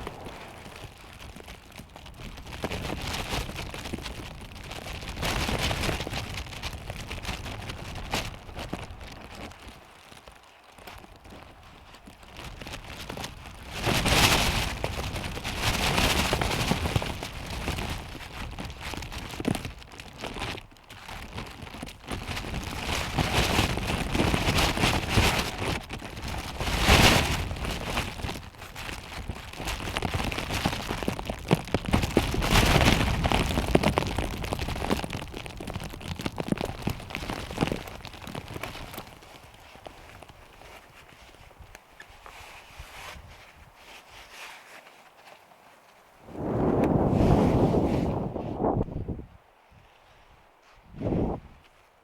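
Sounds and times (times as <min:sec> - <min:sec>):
strong gusting wind: 0:00.0 - 0:03.2, 0:46.2 - 0:49.5, 0:50.8 - 0:51.6.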